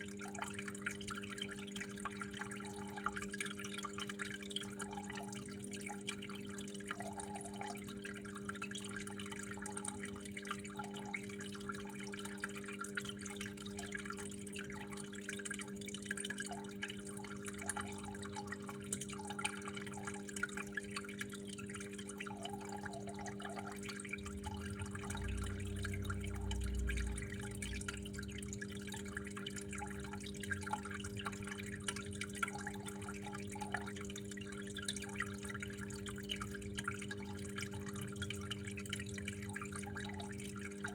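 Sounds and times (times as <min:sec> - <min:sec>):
water dripping and trickling: 0:00.0 - 0:40.9
steady low hum: 0:20.4 - 0:40.9.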